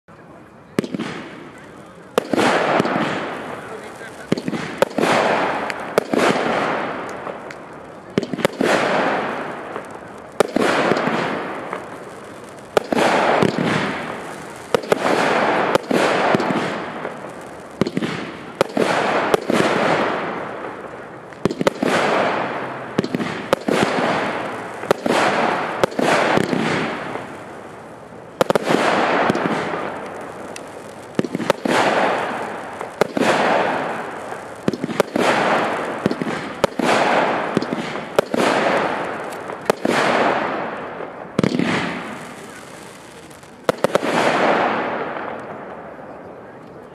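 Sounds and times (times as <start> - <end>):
firework shots banging: 0.8 - 46.0.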